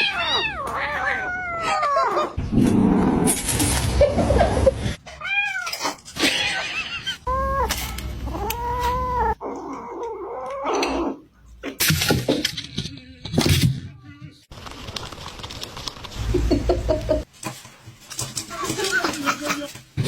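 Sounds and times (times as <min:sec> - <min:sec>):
cat meowing: 0:00.0 - 0:02.4, 0:07.3 - 0:10.7.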